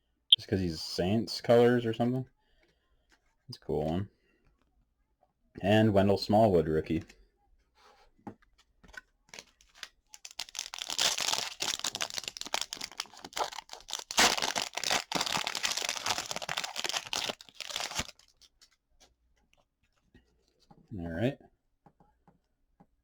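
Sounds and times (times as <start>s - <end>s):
wrapper tearing and crinkling: 9.3s - 18.5s.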